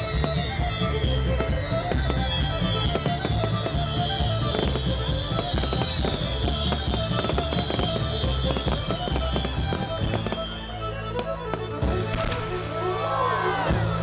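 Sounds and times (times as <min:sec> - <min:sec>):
country fiddle and band music: 0:00.0 - 0:14.0
fireworks crackling and popping: 0:00.0 - 0:14.0.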